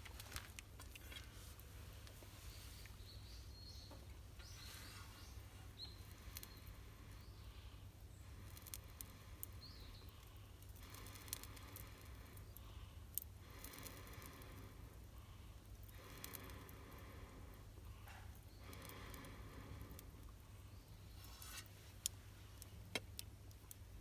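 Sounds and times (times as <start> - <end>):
high bird chirps: 3.0 - 6.6.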